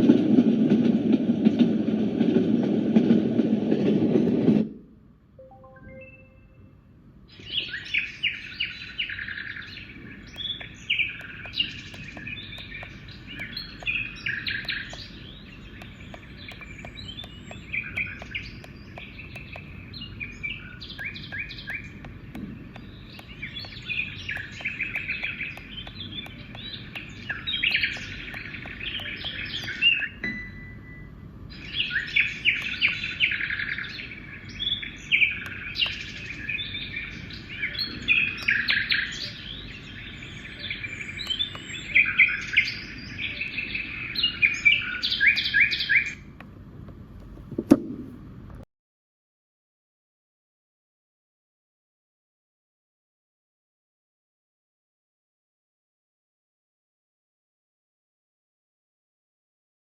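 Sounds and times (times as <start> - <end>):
recorded birds chirping and trilling: 7.2 - 30.2, 31.4 - 46.6.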